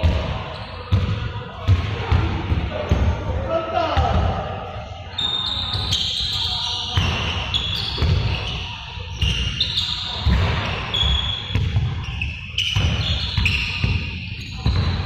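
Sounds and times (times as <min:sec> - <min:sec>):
balls bouncing on hard floor: 0:07.0 - 0:08.6, 0:09.2 - 0:15.0.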